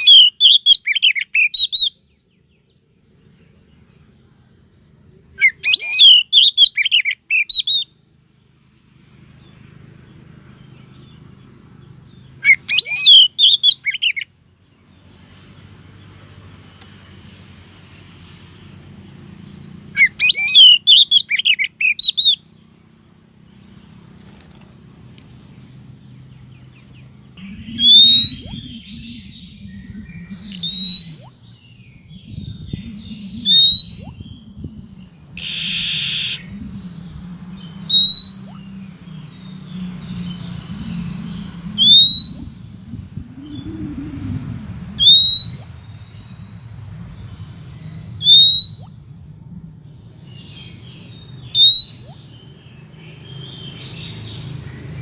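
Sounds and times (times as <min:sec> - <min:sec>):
bird whistle call: 0:00.0 - 0:02.0, 0:05.4 - 0:07.9, 0:12.4 - 0:14.3, 0:20.0 - 0:22.4, 0:27.4 - 0:29.4, 0:30.2 - 0:31.5, 0:32.9 - 0:34.3, 0:35.4 - 0:36.6, 0:37.9 - 0:38.7, 0:41.7 - 0:42.6, 0:45.0 - 0:45.8, 0:48.2 - 0:49.1, 0:51.5 - 0:52.3
harsh hissing bird note: 0:15.0 - 0:49.1
low hum: 0:22.4 - 0:48.2, 0:48.9 - 0:51.6.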